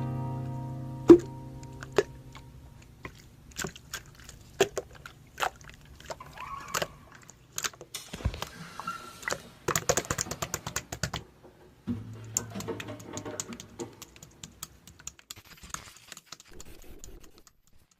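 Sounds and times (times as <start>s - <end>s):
low steady hum: 0.0s - 7.4s
slime squeezed by hand: 3.0s - 9.4s.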